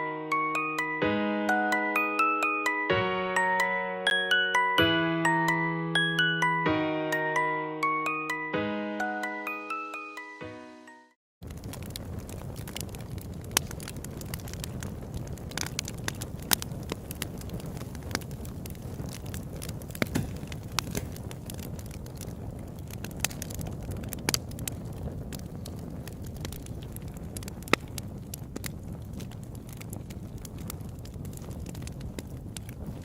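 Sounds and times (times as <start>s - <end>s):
fire crackling: 11.4s - 33.0s.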